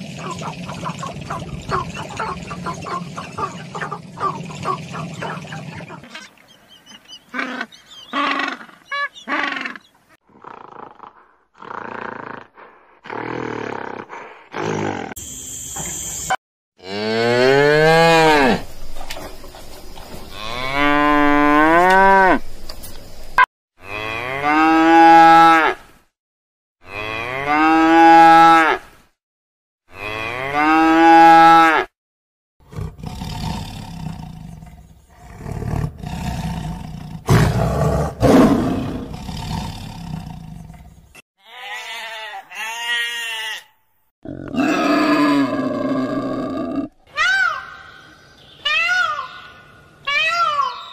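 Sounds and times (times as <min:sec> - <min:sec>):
cattle grunting: 0:07.3 - 0:15.2.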